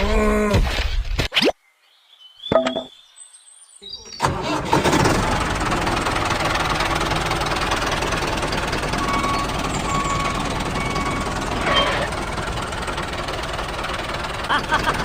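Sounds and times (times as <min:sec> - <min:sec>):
small engine knocking rattle: 0:04.7 - 0:15.0.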